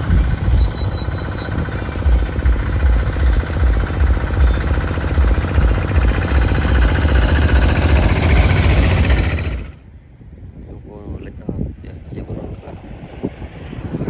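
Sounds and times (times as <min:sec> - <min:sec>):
small engine chugging: 0:00.0 - 0:09.8.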